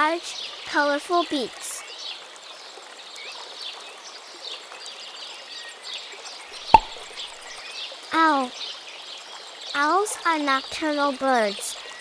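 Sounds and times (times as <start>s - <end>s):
sharp click: 6.8s - 7.0s.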